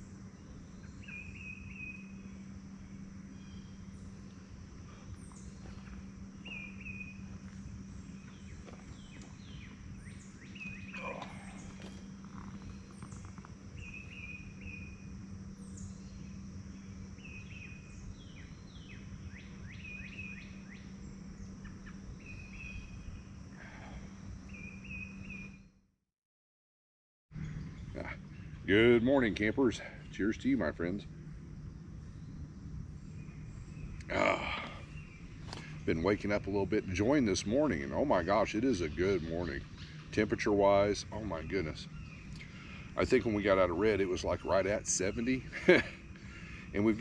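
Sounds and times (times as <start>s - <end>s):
birds chirping: 0.0s - 25.7s, 27.4s - 47.0s
high insect drone: 0.0s - 25.8s, 27.4s - 47.0s
low steady hum: 0.0s - 25.8s, 27.4s - 47.0s.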